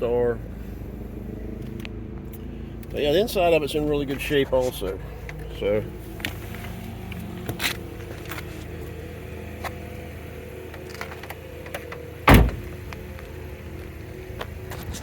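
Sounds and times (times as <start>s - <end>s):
low hum inside car: 0.0s - 15.0s
car door shutting: 10.7s - 12.8s.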